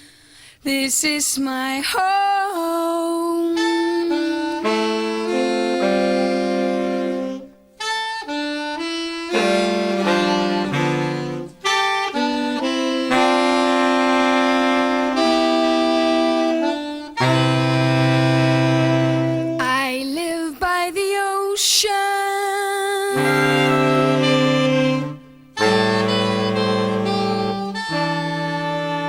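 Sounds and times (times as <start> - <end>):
player breaths: 0.0 - 0.6
saxophone ensemble playing chords: 3.6 - 19.7, 23.1 - 29.0.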